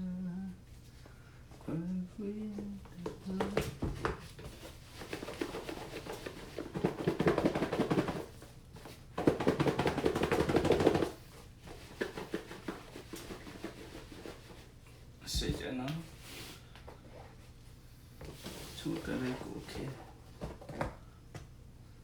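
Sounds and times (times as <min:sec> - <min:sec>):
container rattling when shaken: 0:04.5 - 0:08.5.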